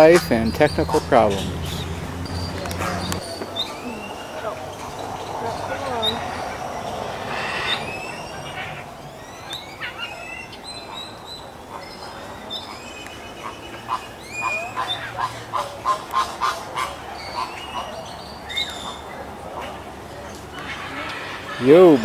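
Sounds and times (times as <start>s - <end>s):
birds chirping and whistling: 0.0s - 15.2s
short repeated bird calls: 0.3s - 11.2s.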